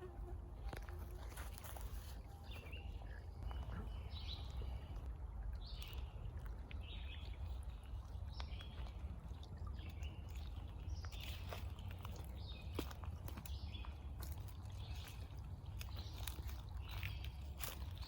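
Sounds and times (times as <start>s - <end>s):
steady low rumble: 0.0s - 12.5s
birds calling: 1.6s - 8.9s.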